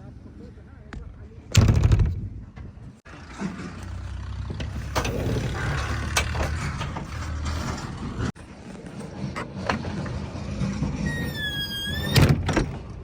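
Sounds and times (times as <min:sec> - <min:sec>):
heavy machinery engine rumbling: 0:03.1 - 0:13.0.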